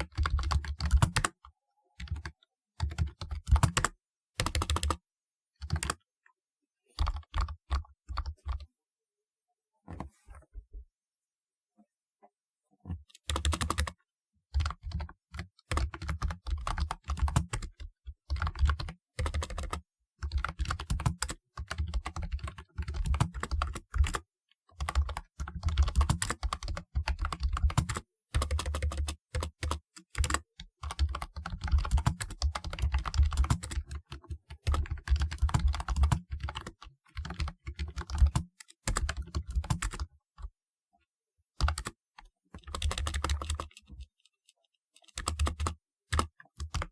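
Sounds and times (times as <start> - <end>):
clicky keyboard typing: 0.0 - 1.4, 2.0 - 5.0, 5.6 - 6.0, 12.9 - 24.2, 24.8 - 40.1, 41.6 - 42.0, 42.6 - 46.9.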